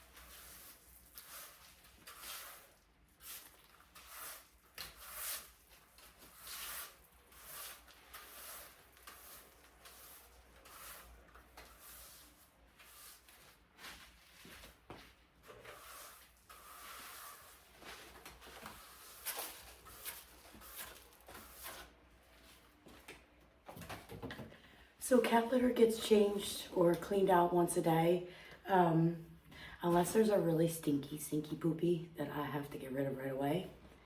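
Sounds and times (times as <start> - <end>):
rustling and scraping: 0.0 - 24.3.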